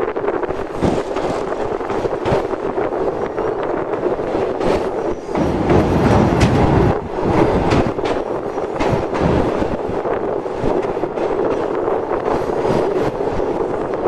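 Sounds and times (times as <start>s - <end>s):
train rumbling on rails: 0.0s - 14.0s
irregular knocks: 5.3s - 9.3s.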